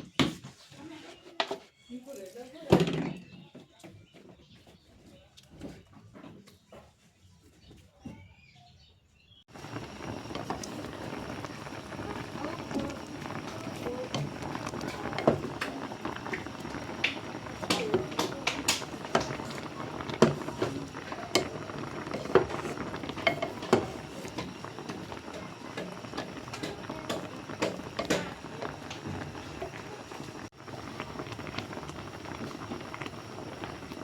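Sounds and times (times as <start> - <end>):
pot of food boiling: 9.5 - 34.0.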